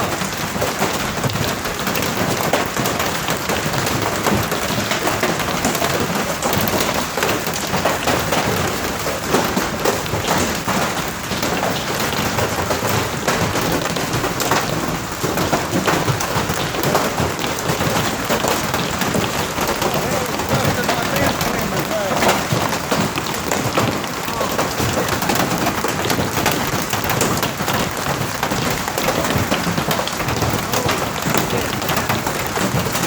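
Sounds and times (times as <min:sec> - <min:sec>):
hailstones pelting down: 0:00.0 - 0:33.0.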